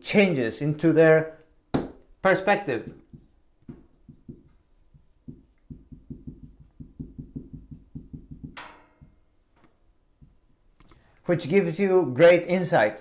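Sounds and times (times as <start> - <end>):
pen scratching handwriting: 2.3 - 8.6.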